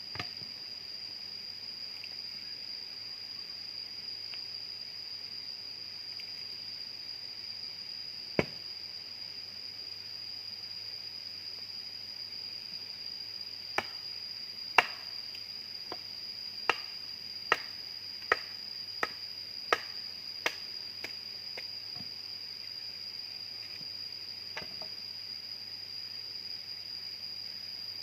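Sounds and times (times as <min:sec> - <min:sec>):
high-pitched insect drone: 0:00.0 - 0:28.0
sharp chopping strikes: 0:08.4 - 0:08.6.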